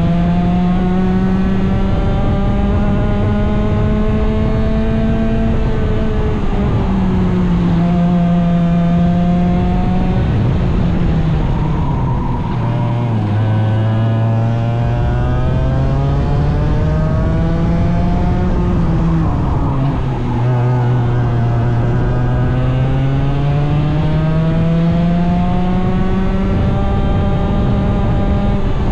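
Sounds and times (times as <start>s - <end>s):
racing engines revving: 0.0s - 28.9s.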